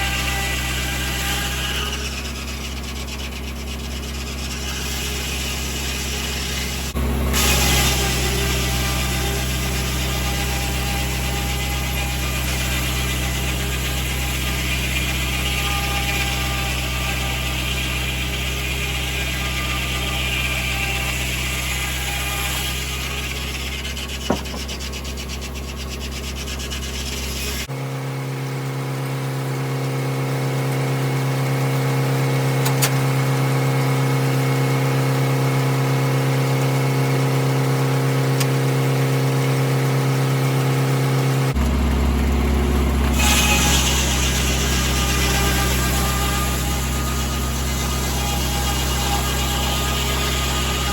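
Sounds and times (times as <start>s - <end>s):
tractor engine running: 41.6s - 43.2s.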